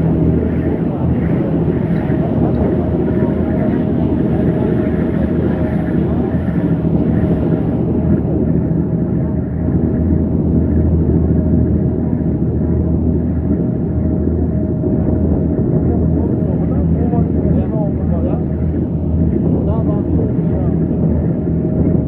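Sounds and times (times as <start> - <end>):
faint voices: 0.0 - 8.3
constant hum: 0.0 - 22.0
large engine rumbling: 0.0 - 22.0.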